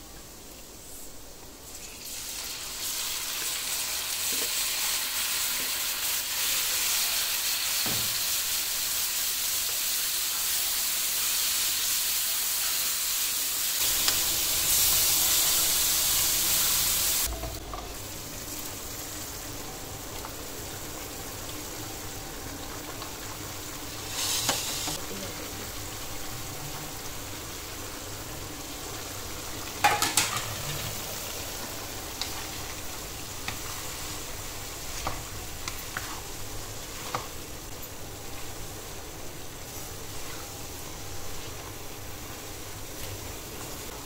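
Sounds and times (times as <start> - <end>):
chicken sizzling in frying pan: 1.6 - 44.0.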